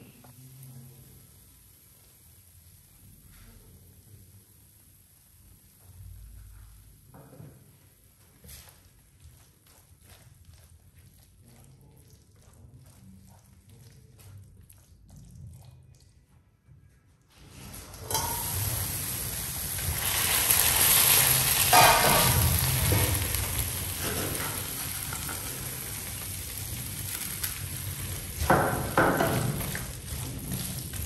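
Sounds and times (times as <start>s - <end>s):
tomatoes sizzling in frying pan: 18.1s - 31.0s.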